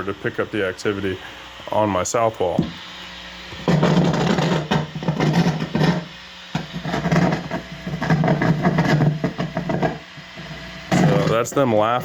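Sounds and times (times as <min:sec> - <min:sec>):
low electrical buzz: 0:00.0 - 0:12.0
crackling static: 0:06.6 - 0:10.0.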